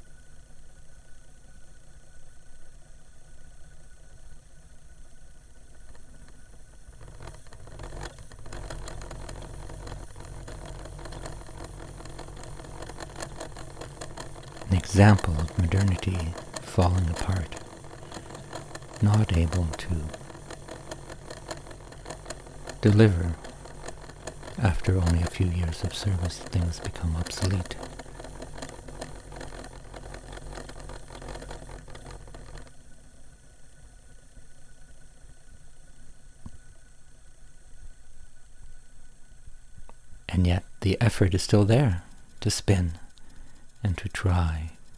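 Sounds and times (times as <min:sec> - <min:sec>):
cd player motor whirring and clicking: 0:05.1 - 0:37.0, 0:41.2 - 0:44.9.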